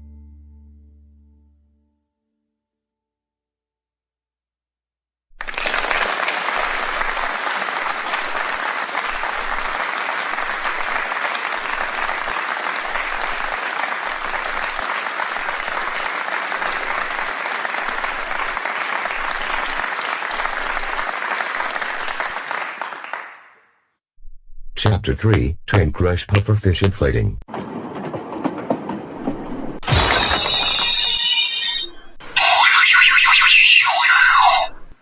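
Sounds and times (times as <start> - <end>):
applause: 5.4 - 23.8.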